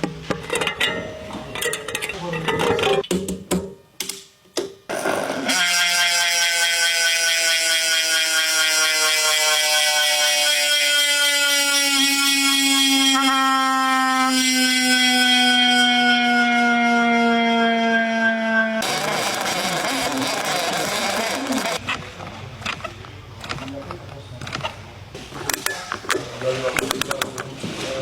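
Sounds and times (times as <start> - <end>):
bicycle freehub ratcheting buzz: 4.9 - 13.4, 18.8 - 21.8.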